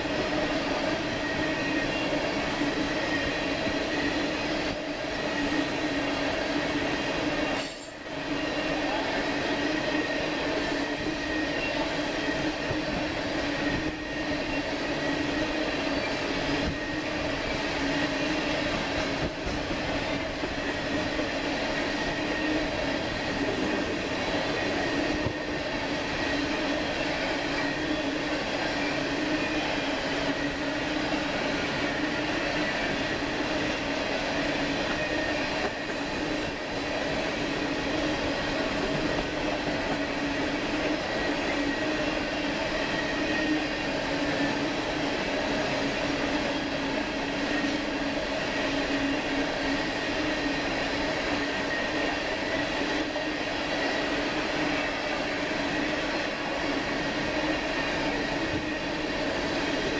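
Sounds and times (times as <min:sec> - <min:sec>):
freight train wheels rumbling: 0:00.0 - 0:59.9
high ringing wheel squeal: 0:09.6 - 0:18.8, 0:24.6 - 0:33.7, 0:34.4 - 0:36.4.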